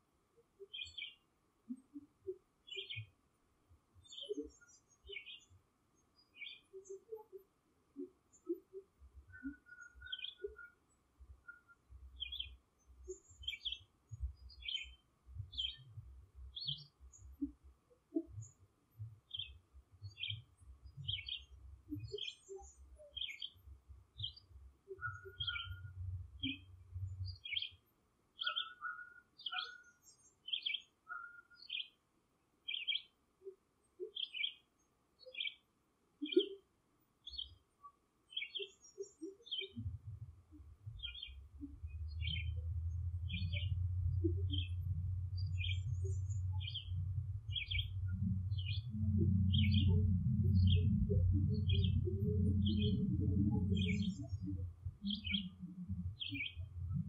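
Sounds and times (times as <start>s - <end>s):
bird chirping: 0.5s - 3.2s, 4.0s - 32.0s, 32.6s - 57.0s
low rumble: 41.7s - 55.1s.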